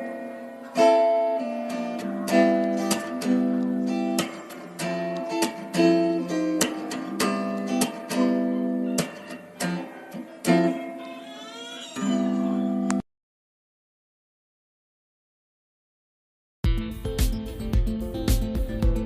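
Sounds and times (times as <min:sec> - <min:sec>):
strummed acoustic guitar chords: 0:00.0 - 0:11.1, 0:16.7 - 0:19.0.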